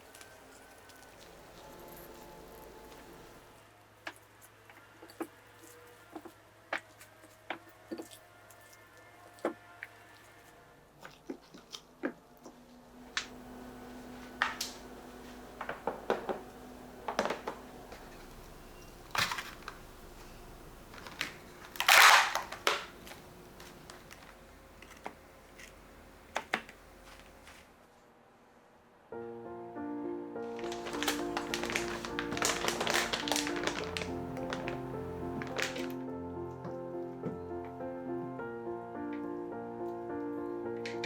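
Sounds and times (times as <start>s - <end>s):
packaging rustling: 13.1s - 27.7s, 30.4s - 36.0s
clicks and knocks of packaging: 20.9s - 27.6s, 30.6s - 36.0s.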